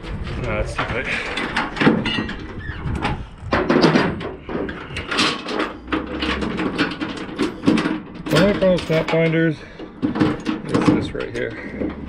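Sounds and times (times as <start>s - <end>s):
chain rattling against metal: 1.0s - 12.0s
sharp knocks of chain binder: 3.6s - 12.0s.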